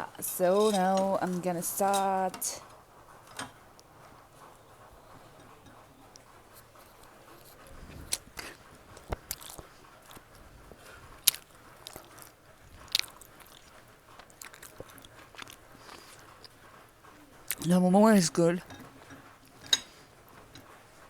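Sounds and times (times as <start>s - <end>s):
person chewing a dumpling: 9.0s - 10.2s, 11.2s - 16.6s.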